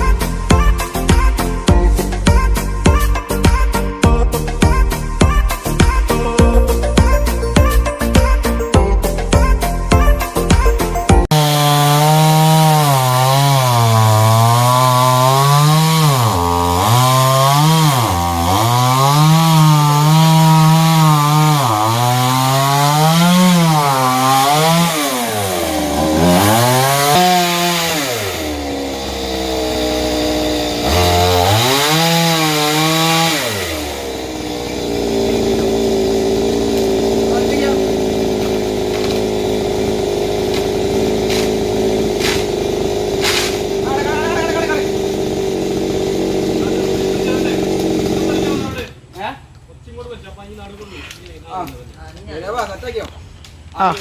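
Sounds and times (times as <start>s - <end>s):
chainsaw cutting wood: 9.3s - 49.0s.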